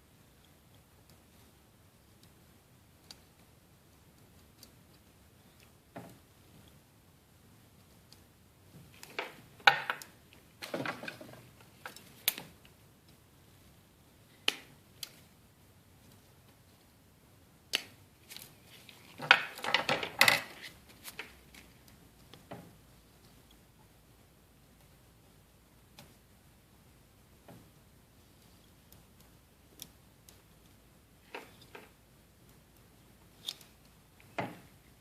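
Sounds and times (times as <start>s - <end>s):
small hand tools clicking and scraping: 33.3s - 34.3s.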